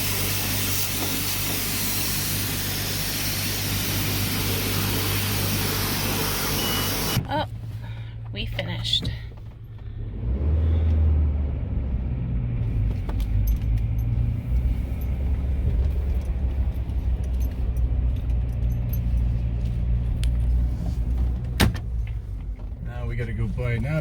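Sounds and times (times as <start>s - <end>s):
engine rumbling: 0.0s - 24.0s
light clicks and rattles: 12.9s - 22.8s.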